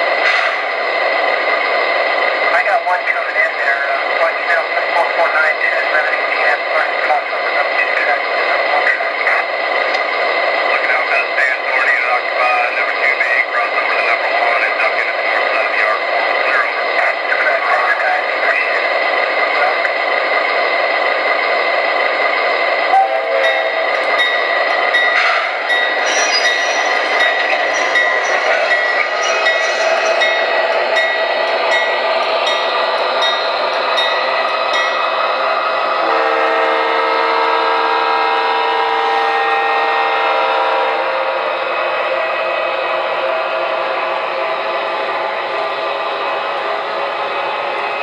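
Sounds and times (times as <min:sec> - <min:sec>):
diesel locomotive sounds: 0:00.0 - 0:48.0
locomotive bell ringing: 0:22.9 - 0:38.6
locomotive horn chord: 0:23.0 - 0:23.5, 0:36.0 - 0:41.3.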